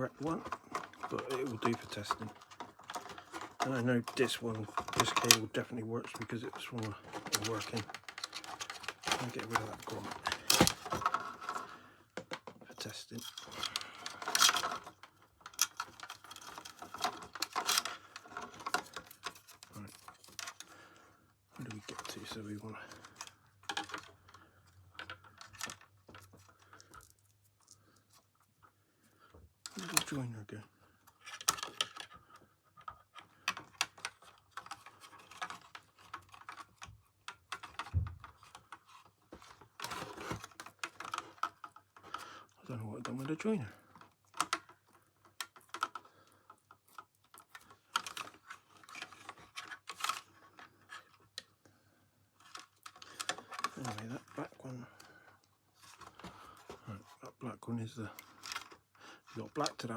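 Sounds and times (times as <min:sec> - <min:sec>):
tools and parts rattling: 0:00.0 - 0:28.4, 0:29.6 - 0:30.4, 0:31.0 - 0:51.5, 0:52.4 - 0:57.2, 0:58.0 - 0:59.9
clicks and taps of small parts: 0:12.2 - 0:20.7.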